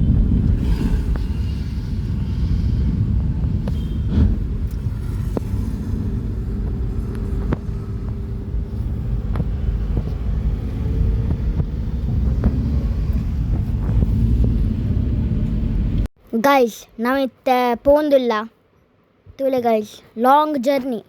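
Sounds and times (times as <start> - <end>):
vehicle engine and road rumble: 0.0 - 16.1.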